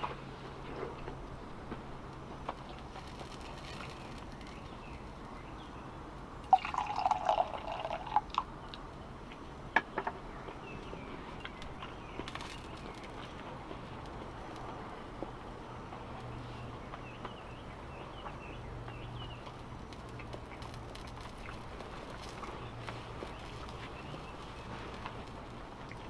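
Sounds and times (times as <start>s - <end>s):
liquid pouring: 6.4s - 8.5s.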